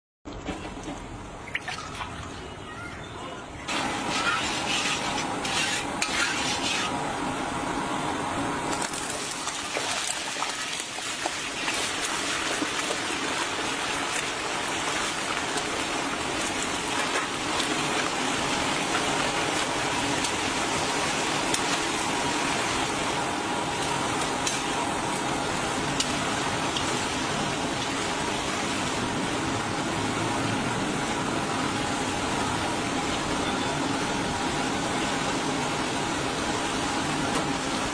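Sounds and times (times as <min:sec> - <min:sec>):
chicken sizzling in hot oil: 0:03.7 - 0:07.7, 0:08.6 - 0:30.4
metal spoon scraping pan: 0:03.8 - 0:07.0.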